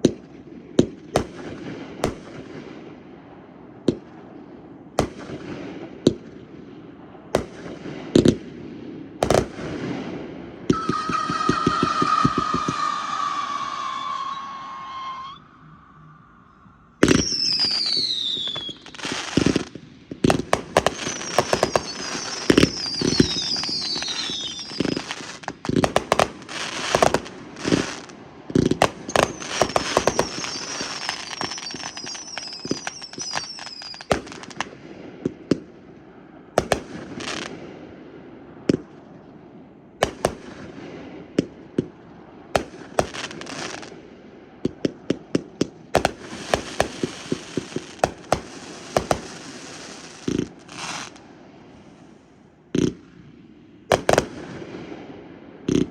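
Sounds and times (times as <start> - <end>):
fireworks banging and crackling: 0.0 - 15.4, 17.0 - 55.9
fireworks whistling: 9.2 - 34.8, 42.6 - 43.9, 45.9 - 53.0, 53.9 - 54.5.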